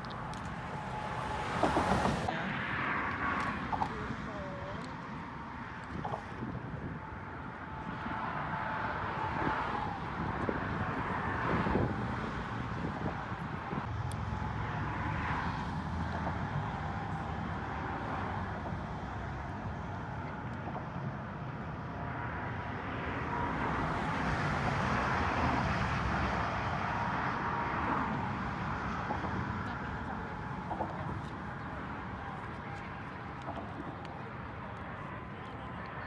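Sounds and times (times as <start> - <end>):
road vehicle noise: 0.0 - 36.0
faint voices: 0.1 - 6.4, 29.2 - 36.0.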